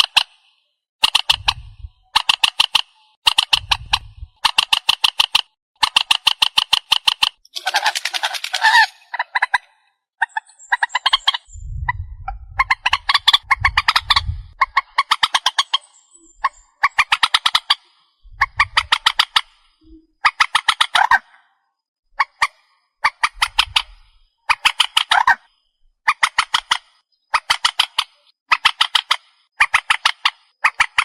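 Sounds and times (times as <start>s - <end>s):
bird harsh ticking calls: 0.0s - 31.0s
low rumble: 11.5s - 14.6s.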